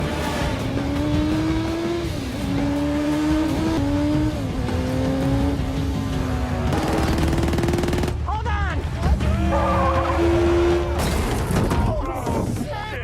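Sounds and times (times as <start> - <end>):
car engine accelerating hard: 0.0 - 8.1, 9.5 - 11.0.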